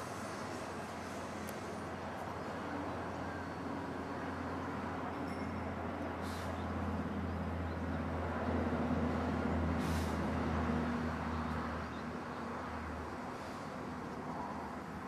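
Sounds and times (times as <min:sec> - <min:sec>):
low engine-like hum: 0:00.0 - 0:15.0
short hisses: 0:06.2 - 0:06.6, 0:09.8 - 0:10.3.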